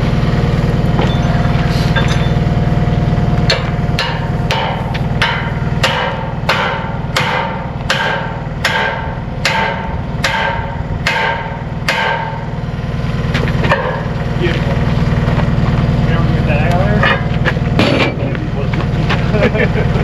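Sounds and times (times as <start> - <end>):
engine idling drone: 0.0 - 20.0
hammer ringing on steel wedge: 3.5 - 12.4.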